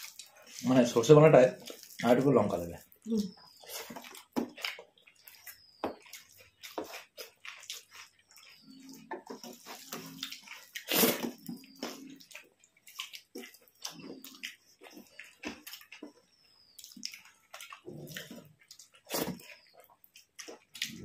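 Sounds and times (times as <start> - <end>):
wet mouth smacks from chewing: 3.6 - 9.1, 9.8 - 21.0.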